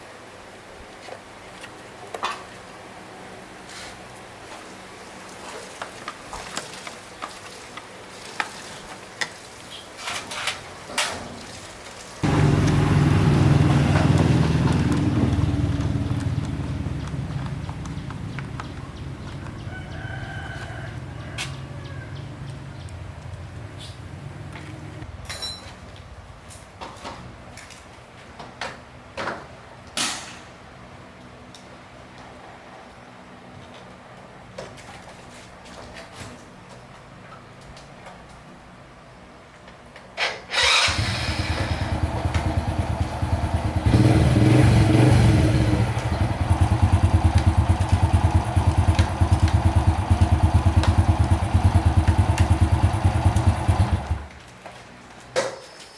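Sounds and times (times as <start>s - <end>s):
motorbike engine running: 12.2s - 19.7s, 40.8s - 54.3s.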